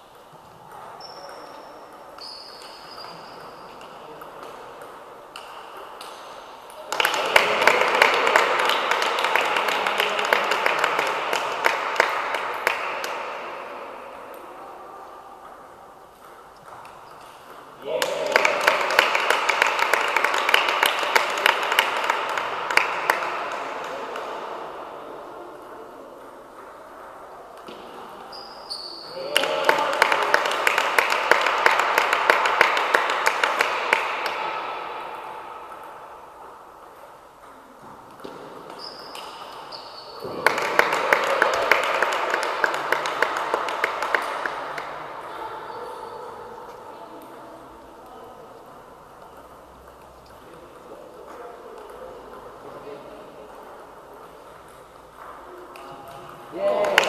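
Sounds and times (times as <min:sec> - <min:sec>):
sports hall noise: 0:00.0 - 0:57.0
crowd clapping: 0:06.8 - 0:13.5, 0:17.8 - 0:24.4, 0:29.1 - 0:34.8, 0:40.2 - 0:45.2, 0:55.8 - 0:57.0.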